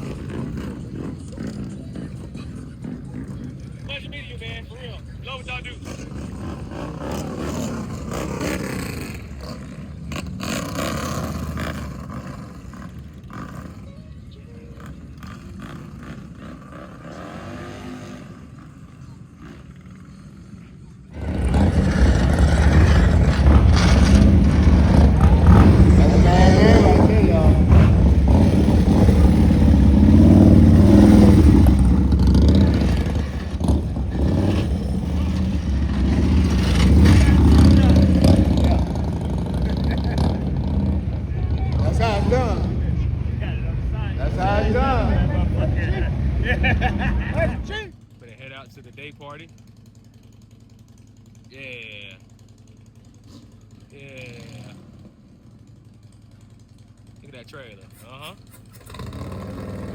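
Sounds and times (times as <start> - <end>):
motorcycle engine droning: 0.0 - 59.9.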